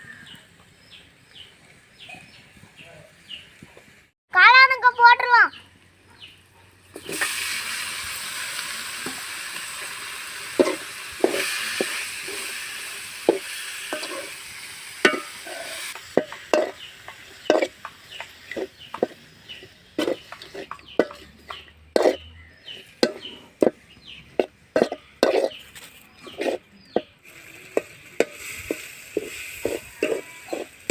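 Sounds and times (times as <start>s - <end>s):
masala sizzling in a pan: 6.8s - 30.9s
spoon scraping and knocking pan: 10.5s - 12.6s, 13.2s - 14.4s, 15.0s - 30.9s.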